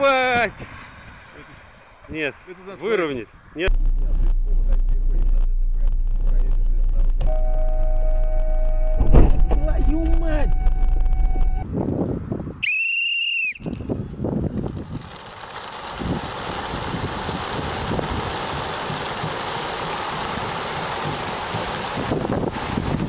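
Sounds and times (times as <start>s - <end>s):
wind: 0.0s - 23.0s
vehicle rumble: 3.3s - 12.6s, 13.7s - 23.0s
shrill whistle-like tone: 12.6s - 13.8s.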